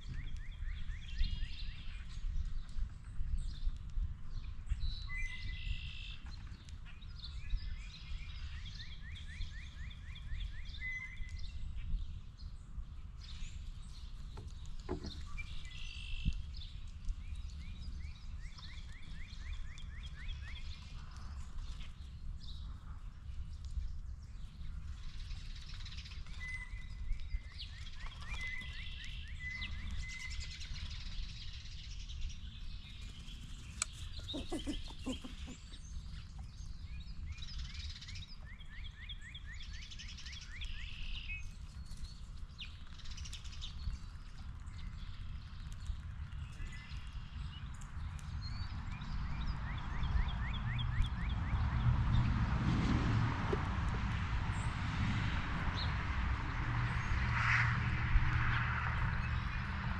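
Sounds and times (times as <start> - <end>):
songbird singing: 0.0 - 52.3
low outdoor rumble: 50.6 - 59.9.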